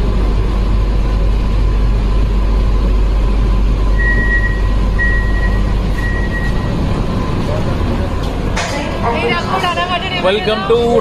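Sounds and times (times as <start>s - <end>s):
faint hum: 0.0s - 11.0s
train rumbling: 0.0s - 11.0s
high-pitched electronic beeps: 4.0s - 6.8s.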